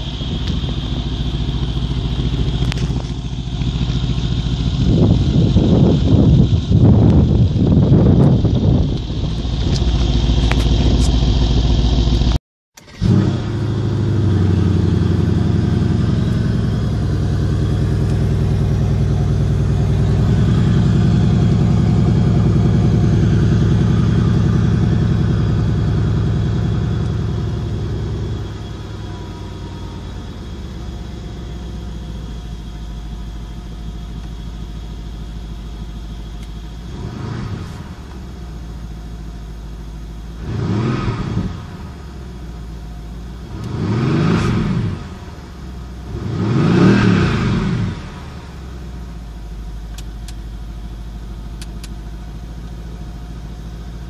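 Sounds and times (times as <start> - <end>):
car engine starting and idling: 0.0 - 54.0
wind buffeting microphone: 4.7 - 9.9.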